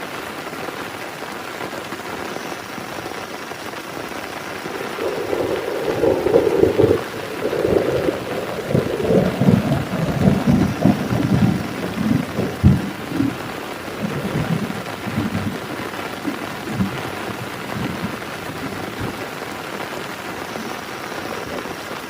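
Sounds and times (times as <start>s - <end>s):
heavy rain on a tent: 0.0s - 22.0s
thunder rumbling: 4.3s - 21.7s
thunder crack: 4.6s - 19.3s.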